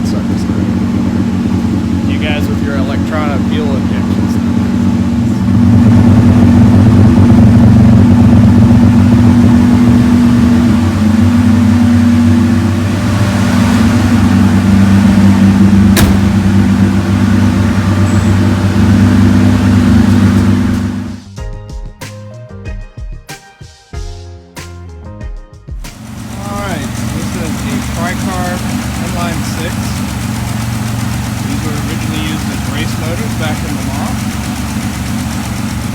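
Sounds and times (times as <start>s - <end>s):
car engine running: 0.0s - 21.3s, 25.9s - 35.9s
sharp click: 16.0s - 16.7s.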